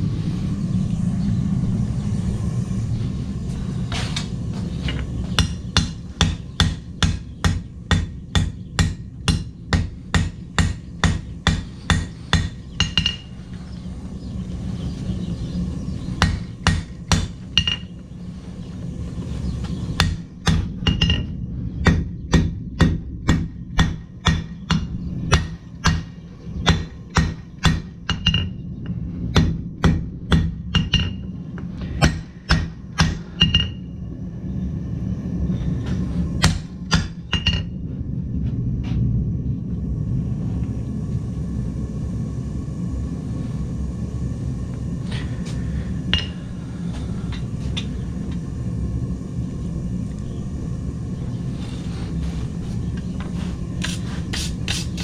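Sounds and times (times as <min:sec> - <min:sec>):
steady rushing noise: 0:00.0 - 0:55.0
hammer striking steel on anvil: 0:05.4 - 0:13.3, 0:16.2 - 0:17.9, 0:20.0 - 0:28.6, 0:29.4 - 0:31.2, 0:32.0 - 0:33.8, 0:46.1 - 0:46.4.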